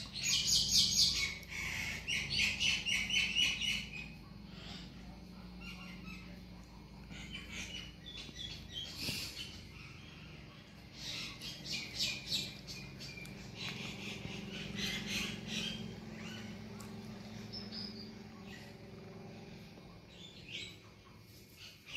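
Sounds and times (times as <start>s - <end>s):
birds chirping: 0.0s - 21.9s
steady low hum: 0.0s - 21.9s.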